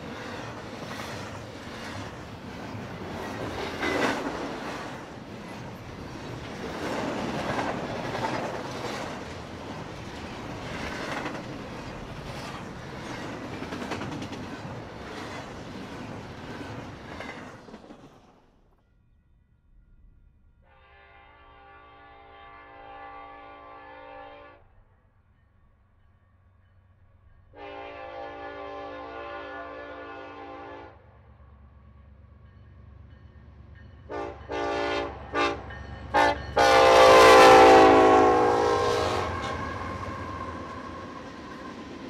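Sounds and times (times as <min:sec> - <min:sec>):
freight train wheels rattling: 0:00.0 - 0:18.3
distant locomotive air horn: 0:20.6 - 0:24.7, 0:27.5 - 0:31.0, 0:34.1 - 0:41.1.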